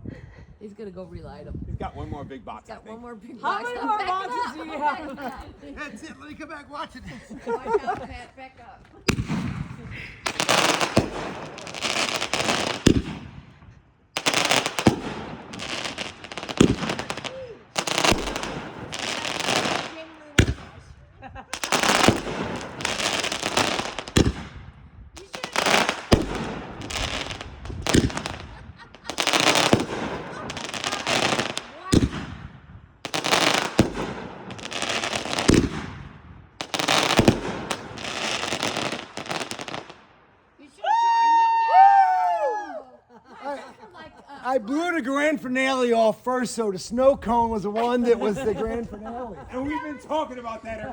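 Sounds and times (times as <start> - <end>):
firework bangs: 9.0 - 40.2
firework crackling: 9.0 - 40.2.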